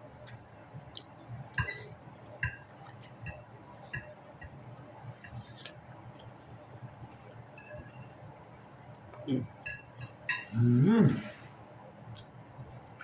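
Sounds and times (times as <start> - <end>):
fork clinking against plate: 1.6 - 5.7, 7.6 - 8.1, 9.6 - 10.5.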